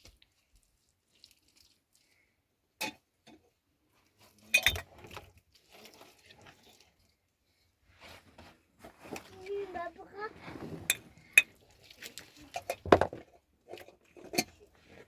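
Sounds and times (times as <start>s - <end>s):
rustling: 7.9s - 13.2s
hard objects clinking and knocking: 12.5s - 13.2s.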